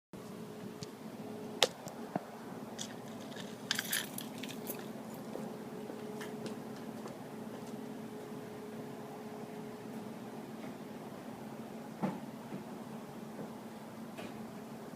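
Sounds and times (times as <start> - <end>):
faint steady hum: 0.2 - 14.9
keys jangling: 3.2 - 5.0.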